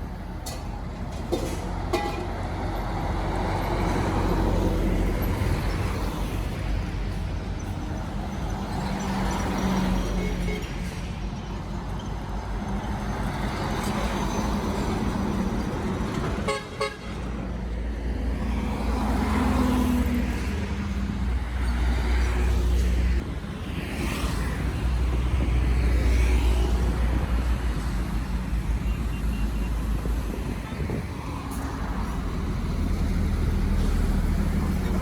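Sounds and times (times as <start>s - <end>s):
vehicles passing on highway: 0.0s - 35.0s
vehicle horn: 16.4s - 17.2s.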